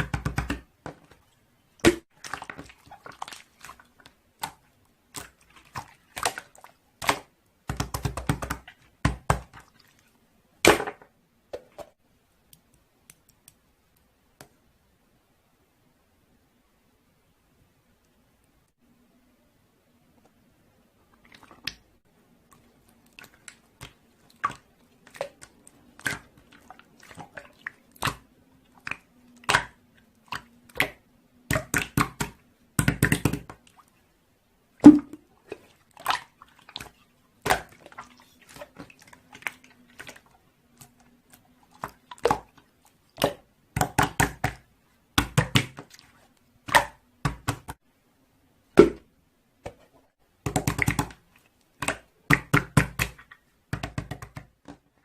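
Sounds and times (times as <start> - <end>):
faint low hum: 10.1 - 31.5.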